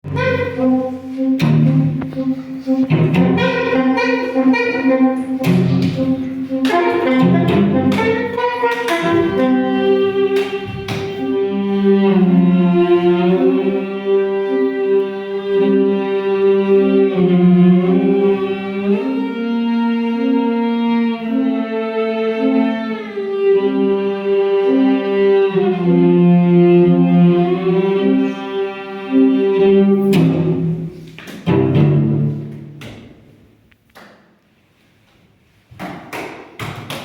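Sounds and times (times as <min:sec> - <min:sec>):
long held sliding notes: 0:00.0 - 0:10.3
sharp percussive strikes: 0:03.4 - 0:09.4.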